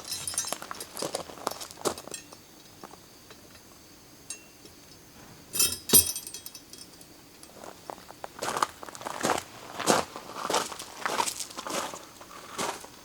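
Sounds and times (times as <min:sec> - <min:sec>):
tableware clinking: 0:05.5 - 0:07.1.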